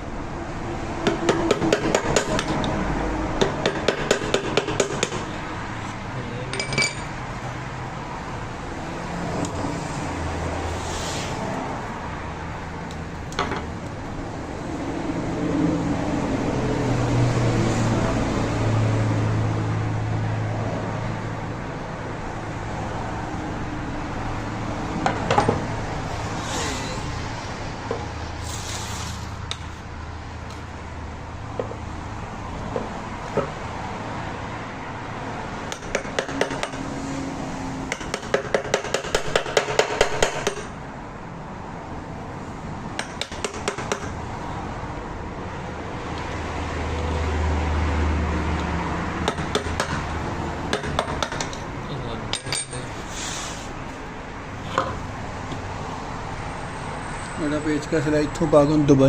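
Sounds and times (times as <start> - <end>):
tools and metal parts clinking: 6.5 - 7.2, 52.3 - 52.9
short hisses: 26.3 - 27.2, 28.4 - 29.4, 53.1 - 53.8.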